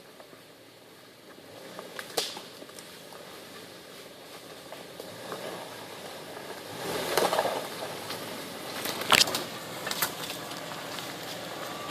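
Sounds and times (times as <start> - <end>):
truck driving through mud: 0.2 - 11.9.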